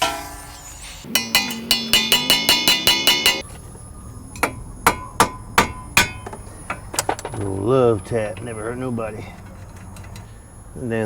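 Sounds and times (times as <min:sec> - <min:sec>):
hammer striking metal: 0:00.0 - 0:03.5, 0:04.4 - 0:06.8.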